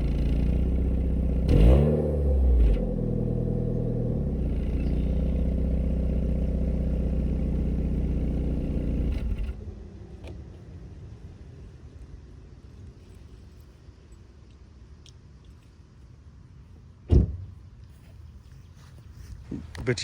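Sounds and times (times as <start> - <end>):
car engine revving and idling: 0.0 - 10.3.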